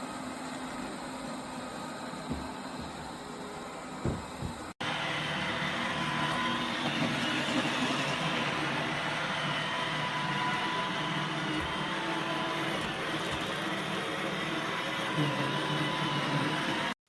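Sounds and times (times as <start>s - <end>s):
robot vacuum motor whirring: 4.8s - 17.0s.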